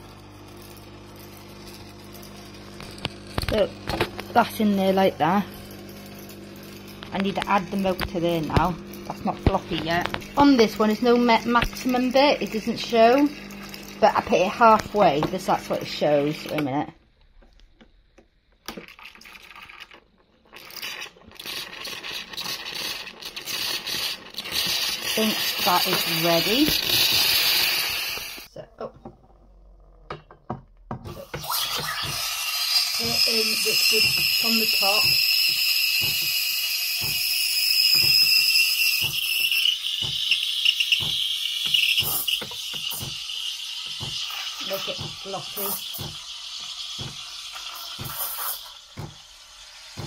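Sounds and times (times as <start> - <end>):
steam wand hissing: 21.4 - 28.5, 31.1 - 50.0.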